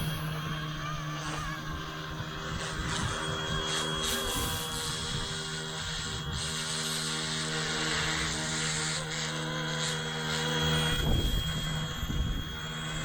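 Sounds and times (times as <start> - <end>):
toy helicopter motor whirring: 0.0 - 13.0.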